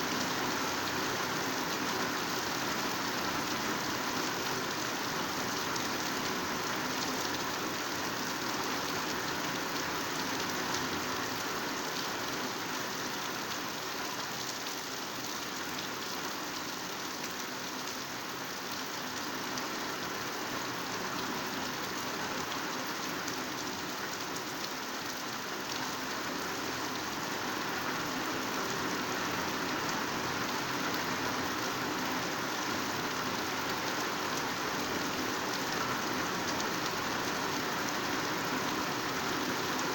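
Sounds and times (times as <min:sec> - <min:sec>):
heavy rain on foliage: 0:00.0 - 0:39.9.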